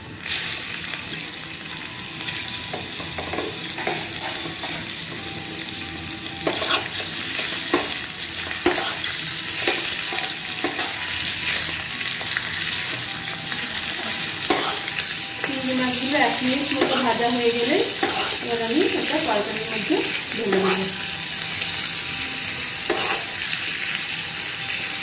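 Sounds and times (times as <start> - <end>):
prawns sizzling in hot oil: 0.0 - 25.0
metal spoon scraping a pan: 6.4 - 13.1, 13.9 - 15.2, 16.3 - 19.2, 20.0 - 21.1, 22.8 - 23.4.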